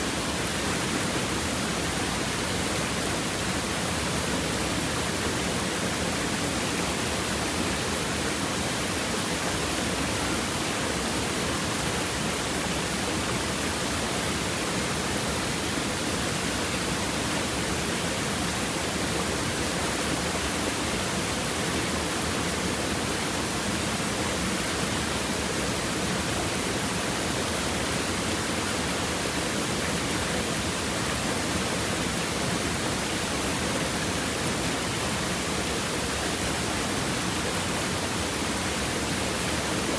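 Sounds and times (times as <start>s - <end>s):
stream babbling over rocks: 0.1s - 39.9s.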